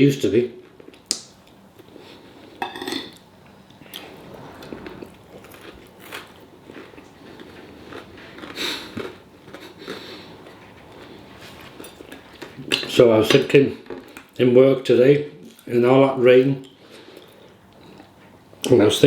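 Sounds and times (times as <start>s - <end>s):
person chewing and eating: 5.4s - 12.9s.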